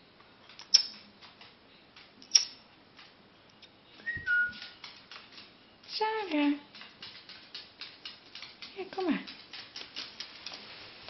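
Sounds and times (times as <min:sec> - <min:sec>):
parrot two-note whistle: 0:04.1 - 0:04.6.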